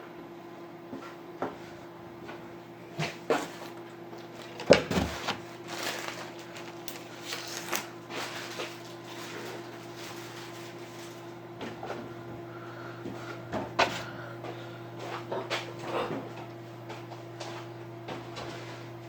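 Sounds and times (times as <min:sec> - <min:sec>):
microwave oven humming: 0:00.0 - 0:19.0
kitchen knocks and clatters: 0:04.4 - 0:05.4.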